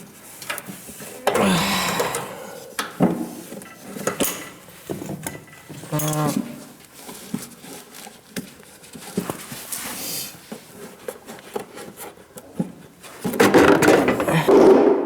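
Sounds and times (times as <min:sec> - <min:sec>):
hand tools clicking on metal: 0:01.3 - 0:03.0.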